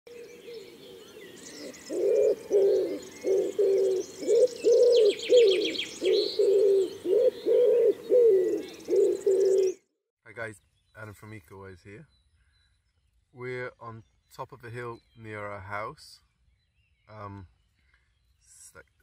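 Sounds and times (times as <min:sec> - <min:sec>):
high bird chirps: 0:00.1 - 0:09.8
bird repeating low note: 0:00.1 - 0:09.9.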